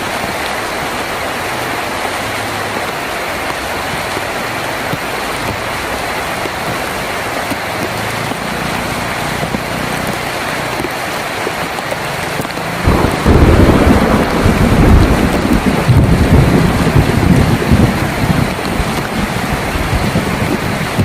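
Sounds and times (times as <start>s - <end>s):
heavy rain on a tin roof: 0.0s - 21.0s
thunder rumbling: 12.8s - 21.0s.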